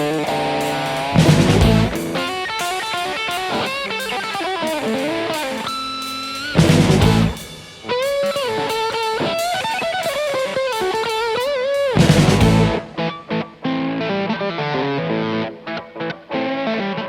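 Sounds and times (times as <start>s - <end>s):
bass and drums: 0.0s - 5.0s, 6.4s - 11.2s, 11.8s - 13.0s
electric lead guitar melody: 0.0s - 17.0s.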